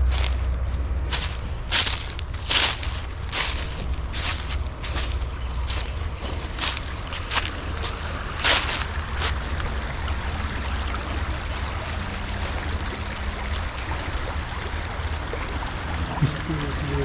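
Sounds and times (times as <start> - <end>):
creek water running: 0.0 - 17.0
low rumble: 0.0 - 17.0.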